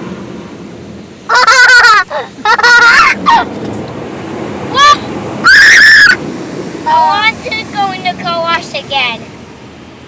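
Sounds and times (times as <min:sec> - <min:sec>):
car wash water washing: 0:00.0 - 0:10.0
children squealing: 0:01.3 - 0:03.5, 0:04.7 - 0:06.2.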